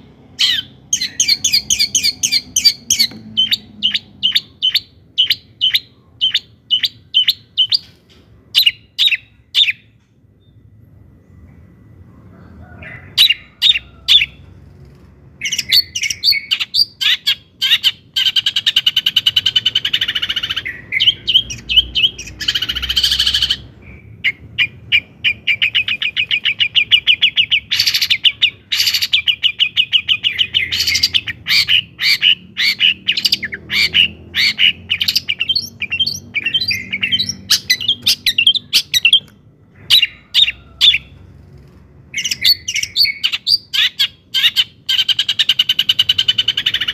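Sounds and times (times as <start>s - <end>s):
bird harsh rasping calls: 0.4s - 7.9s, 15.4s - 39.2s, 39.8s - 41.1s, 42.1s - 46.9s
bird chattering song: 0.4s - 10.5s, 15.4s - 41.1s, 42.1s - 46.9s.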